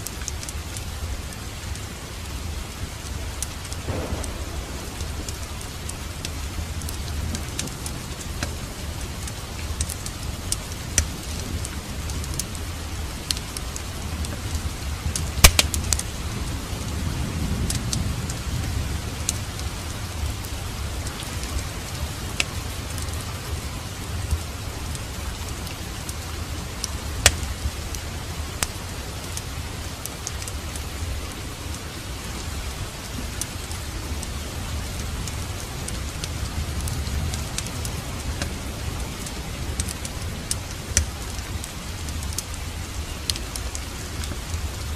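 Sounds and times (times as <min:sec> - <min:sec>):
steady rain: 0:00.0 - 0:44.9
wood fire crackling and popping: 0:02.9 - 0:44.9
low rumble: 0:03.9 - 0:09.7.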